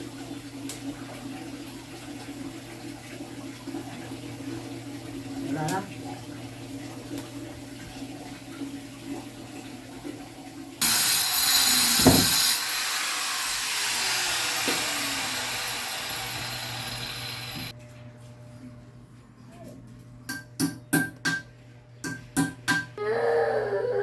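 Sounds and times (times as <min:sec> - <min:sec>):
toilet flushing: 0:00.0 - 0:11.1.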